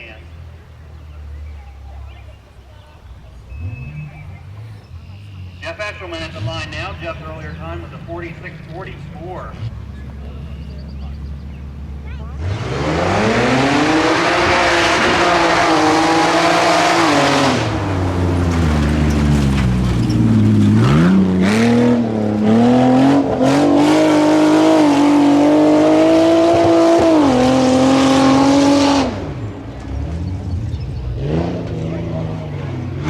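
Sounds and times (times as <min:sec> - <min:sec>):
truck engine revving hard: 0:03.0 - 0:33.0
clattering crashes: 0:18.0 - 0:21.8.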